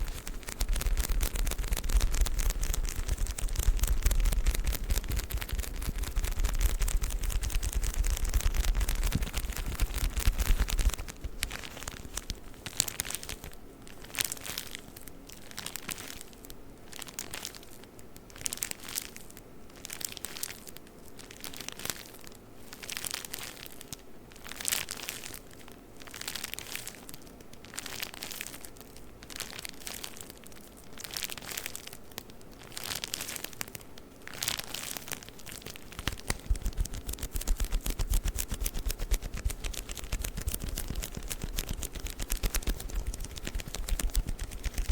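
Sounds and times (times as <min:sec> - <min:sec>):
tissue paper crinkling: 0:00.0 - 0:14.7, 0:27.8 - 0:44.9.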